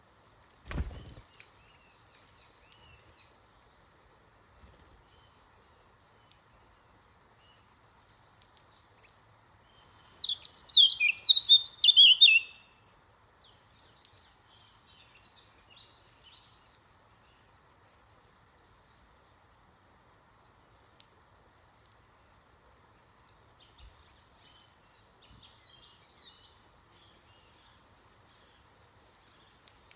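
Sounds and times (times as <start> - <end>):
faint songbirds calling: 0.0 - 29.9
bird song with falling notes: 10.2 - 12.7.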